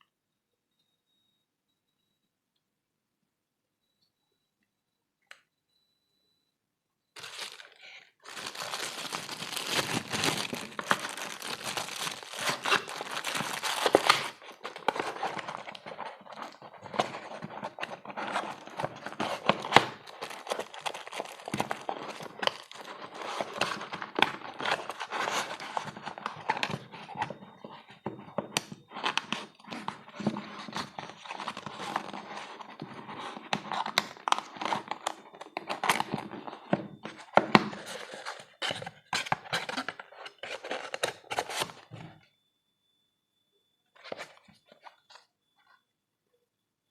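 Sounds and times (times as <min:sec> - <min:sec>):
packaging crinkling and tearing: 0:07.2 - 0:41.8.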